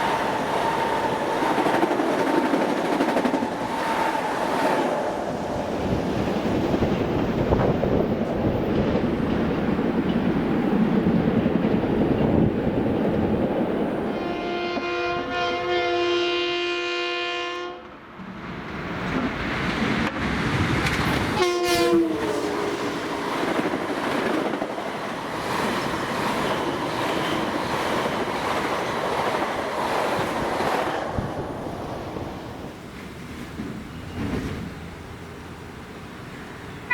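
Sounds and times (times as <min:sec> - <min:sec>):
train wheels on rails: 0:00.0 - 0:15.0, 0:18.2 - 0:36.9
train horn: 0:14.1 - 0:17.9, 0:21.4 - 0:23.1.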